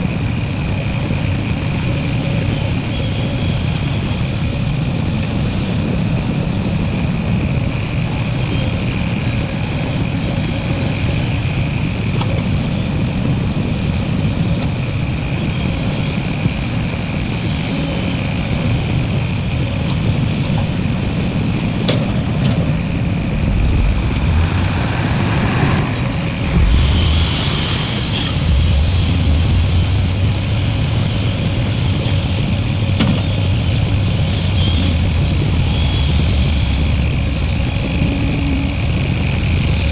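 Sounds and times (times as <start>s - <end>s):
heavy diesel engines rumbling: 0.0s - 39.9s.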